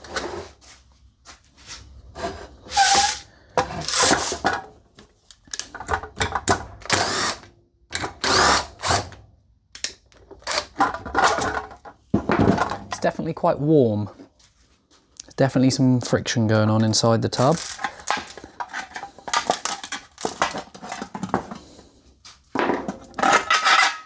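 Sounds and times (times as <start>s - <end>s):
lid scraping and grinding: 2.1s - 4.6s, 17.4s - 21.4s, 23.2s - 24.0s.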